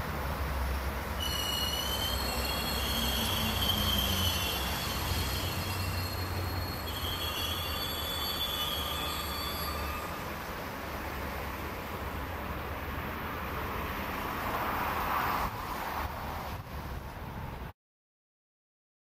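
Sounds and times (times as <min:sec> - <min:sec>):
low train rumble: 0:00.0 - 0:17.7
train wheel squeal: 0:00.6 - 0:10.5.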